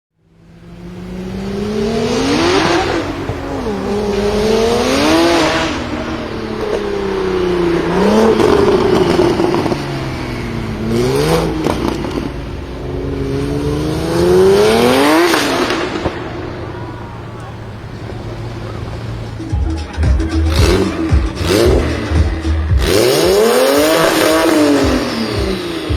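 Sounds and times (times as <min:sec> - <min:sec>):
car engine revving: 0:00.1 - 0:25.9
sharp exhaust pops: 0:02.4 - 0:12.7, 0:19.3 - 0:25.9.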